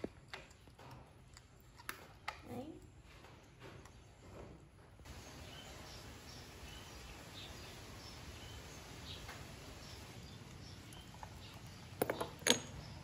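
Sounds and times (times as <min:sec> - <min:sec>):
faint background hiss: 0:05.0 - 0:13.0.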